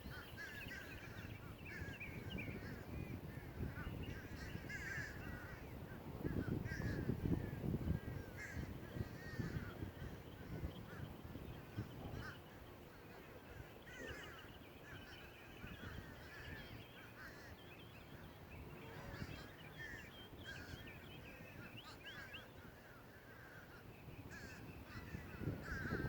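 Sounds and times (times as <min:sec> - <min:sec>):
birds chirping in chorus: 0:00.0 - 0:26.0.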